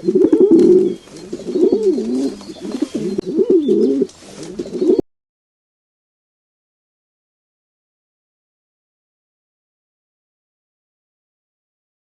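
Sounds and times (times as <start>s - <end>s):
animal low wavering calls: 0.0s - 5.0s.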